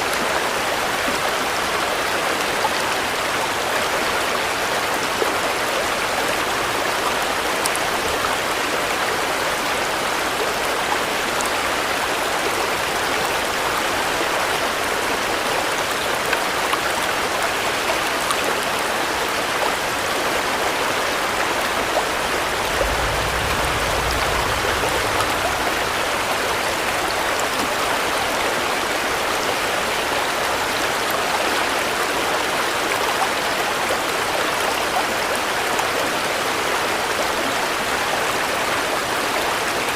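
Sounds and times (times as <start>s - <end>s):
heavy rain: 0.0s - 39.9s
low rumble: 21.8s - 28.0s.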